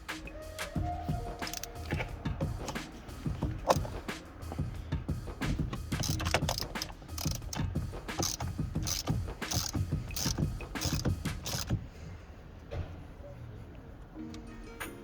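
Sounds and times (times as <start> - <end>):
ratchet wrench clicking: 1.4 - 4.7, 5.4 - 11.8.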